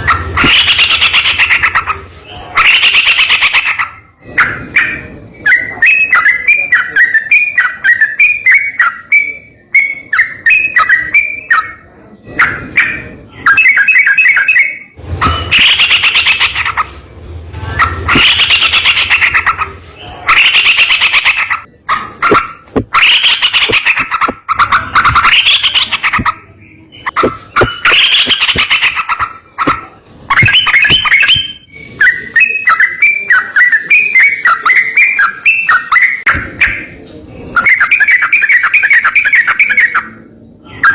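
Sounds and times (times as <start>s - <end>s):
bird chattering chirps: 0.0s - 17.0s, 17.8s - 37.0s, 37.6s - 40.2s
harsh rolling birdsong bursts: 13.3s - 32.4s.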